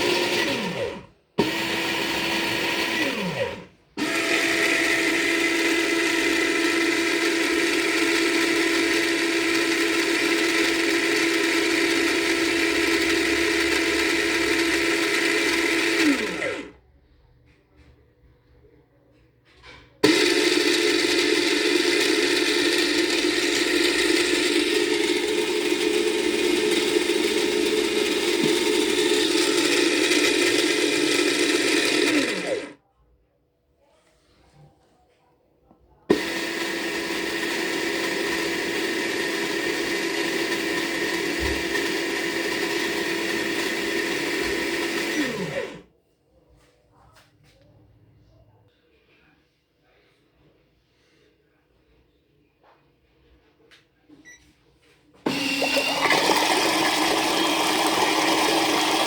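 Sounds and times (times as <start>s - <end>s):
motor winding down: 0.0s - 16.7s, 20.0s - 32.8s, 36.1s - 45.8s, 55.3s - 59.0s
washing machine motor humming: 0.0s - 16.8s, 20.0s - 32.8s, 36.1s - 45.8s, 55.3s - 59.0s.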